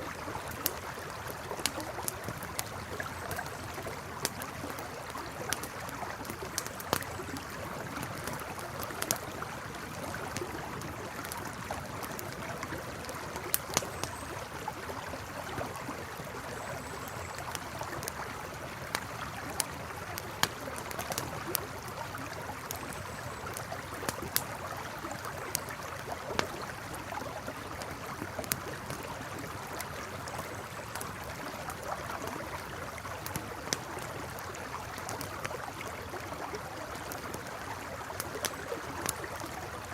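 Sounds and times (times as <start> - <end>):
campfire crackling: 0.0 - 39.9
river water flowing: 0.0 - 39.9.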